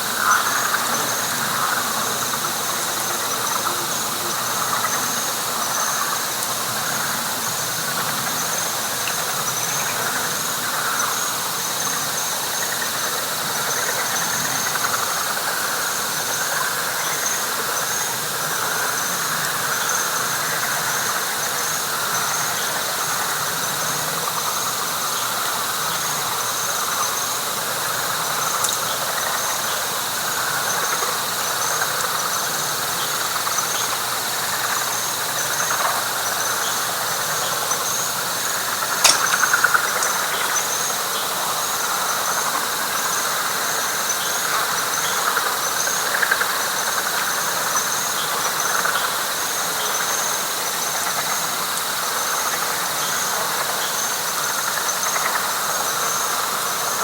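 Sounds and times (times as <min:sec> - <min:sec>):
frogs chorus: 0:00.0 - 0:57.0
sharp click: 0:39.0 - 0:39.8.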